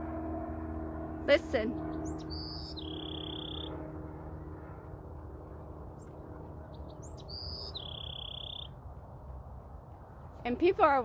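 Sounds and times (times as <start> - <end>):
low outdoor rumble: 0.0 - 11.0
bird chirps: 1.8 - 3.8, 6.7 - 8.8.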